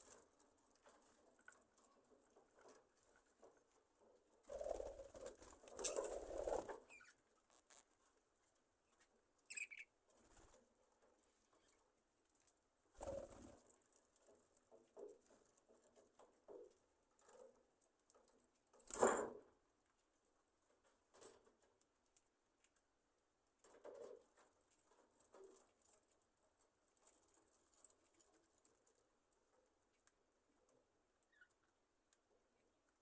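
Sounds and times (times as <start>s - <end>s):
birds scratching and clicking: 0.0s - 8.2s, 8.9s - 19.6s, 23.6s - 31.6s
birds rustling: 4.4s - 7.9s.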